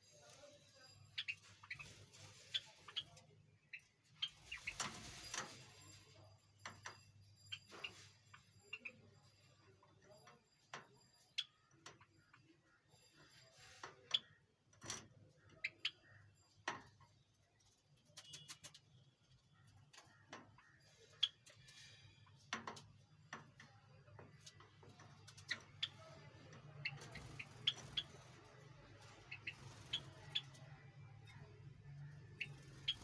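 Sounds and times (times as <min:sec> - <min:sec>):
high bird chirps: 0:25.2 - 0:33.0.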